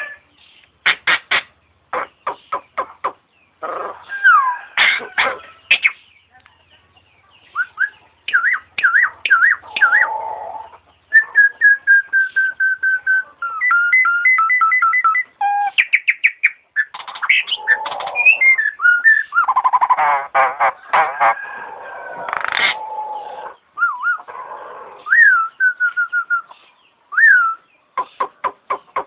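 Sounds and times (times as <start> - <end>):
starling singing whistles: 7.5 - 10.2, 11.1 - 20.0, 23.8 - 24.3, 25.0 - 27.7.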